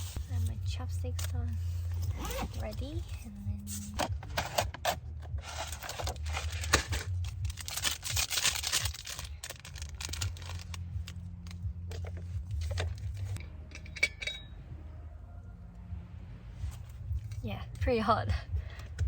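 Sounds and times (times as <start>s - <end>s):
plastic packaging crinkling: 5.4s - 11.2s.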